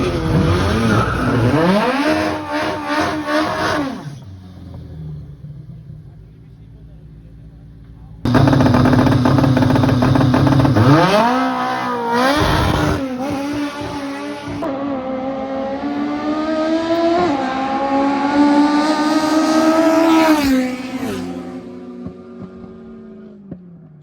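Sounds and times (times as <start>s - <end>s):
race car engine accelerating: 8.2s - 23.6s.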